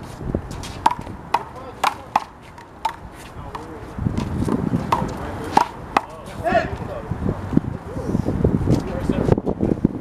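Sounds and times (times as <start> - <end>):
handball slapping hands and wall: 0.8 - 6.2.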